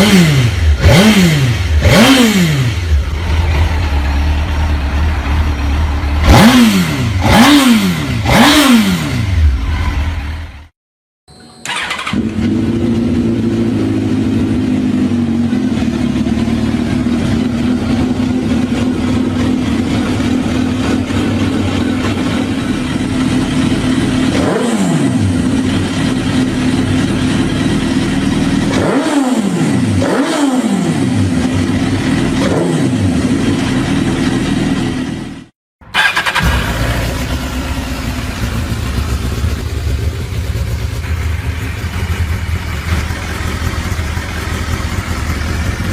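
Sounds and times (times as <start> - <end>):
motorcycle engine idling: 0.0 - 8.6, 11.6 - 24.5, 25.2 - 28.8, 33.1 - 45.9
motorcycle throttle blips: 11.6 - 24.6, 35.9 - 45.9.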